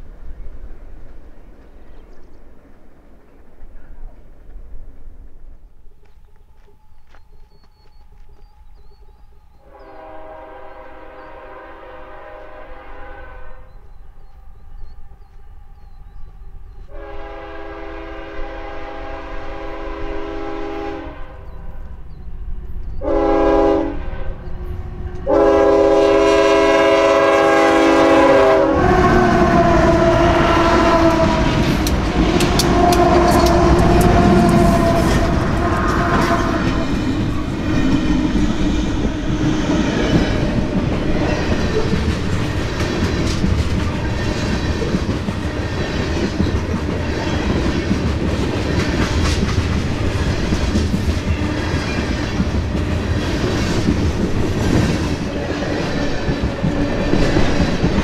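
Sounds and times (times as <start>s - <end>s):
locomotive air horn: 9.7s - 13.7s, 16.9s - 21.4s, 23.0s - 24.4s, 25.2s - 37.0s
freight cars clickety-clack: 29.3s - 58.0s.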